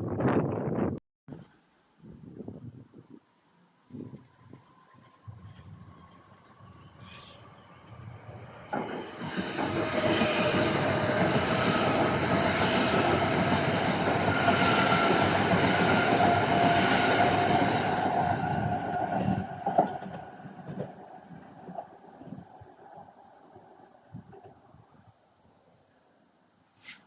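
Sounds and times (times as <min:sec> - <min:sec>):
electric train running: 0:05.0 - 0:21.8.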